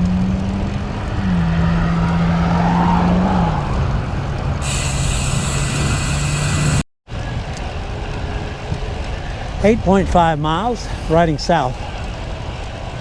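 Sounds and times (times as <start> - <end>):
low motor vehicle hum: 0.0 - 13.0
wind and bicycle road noise: 0.0 - 13.0
hiss: 4.6 - 6.8.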